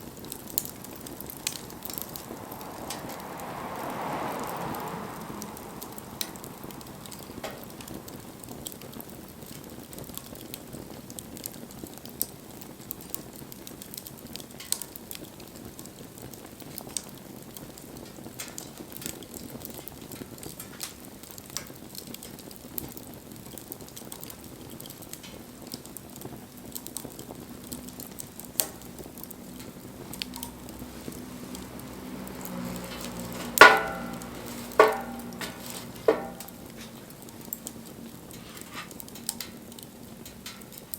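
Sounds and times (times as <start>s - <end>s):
wood fire crackling: 0.0s - 40.9s
ringing knocks: 33.4s - 36.5s.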